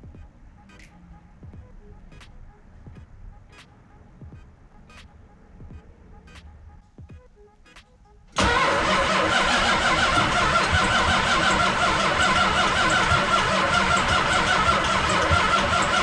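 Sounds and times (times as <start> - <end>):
faint clicks: 0.7 - 1.1
starter cranking engine: 8.4 - 16.0.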